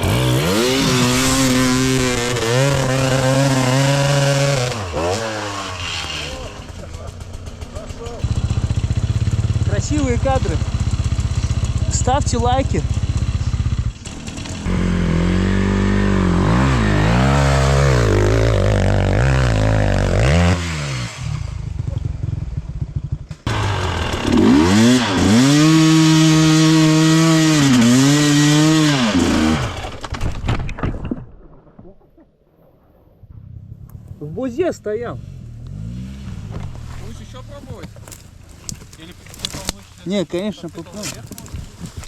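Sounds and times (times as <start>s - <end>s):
dirt bike engine revving: 0.0s - 30.0s, 35.2s - 39.8s.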